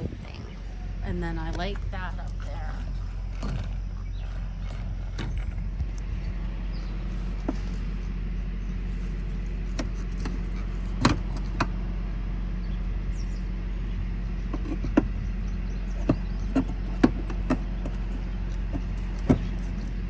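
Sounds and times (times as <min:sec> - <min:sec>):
diesel truck engine idling: 0:00.0 - 0:20.0
sharp clicks and knocks: 0:01.5 - 0:08.1, 0:08.8 - 0:11.7, 0:14.5 - 0:20.0.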